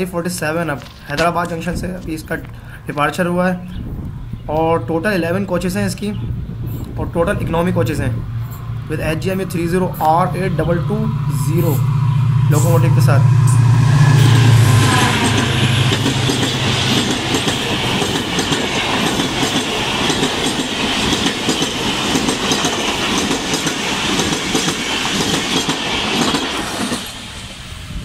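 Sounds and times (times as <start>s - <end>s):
diesel locomotive engine hum: 0.0s - 28.0s
train coaches clattering over rail joints: 14.1s - 27.2s.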